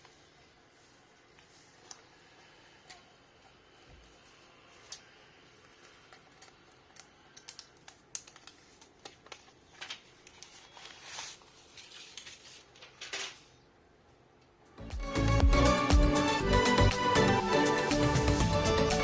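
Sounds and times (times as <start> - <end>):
packaging rustling: 5.6 - 13.6.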